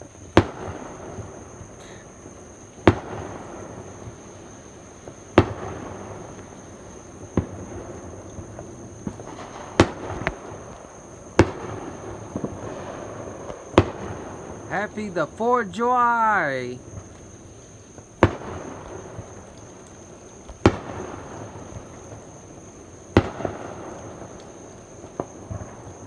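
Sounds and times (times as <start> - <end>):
fireworks banging: 14.7 - 16.8.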